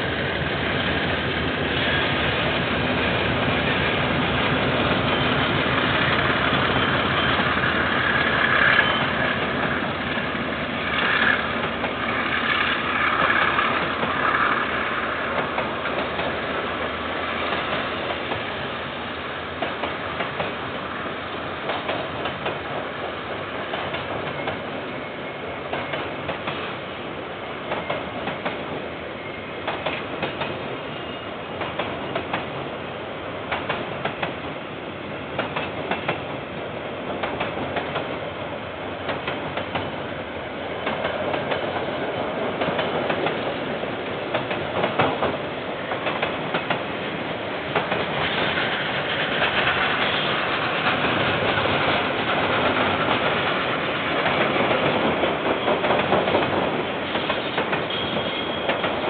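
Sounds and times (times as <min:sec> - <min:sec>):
diesel locomotive engines: 0:00.0 - 0:59.0
wheels clicking over rail joints: 0:40.8 - 0:47.0, 0:47.7 - 0:59.0.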